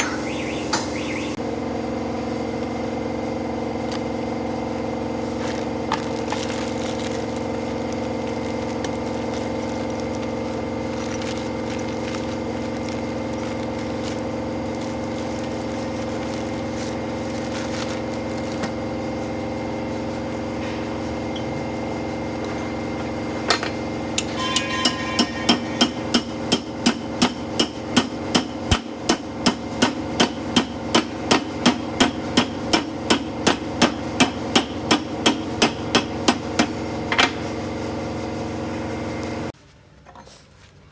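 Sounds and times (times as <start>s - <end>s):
engine drone: 0.0s - 29.5s
hammer blows on metal: 24.2s - 36.8s.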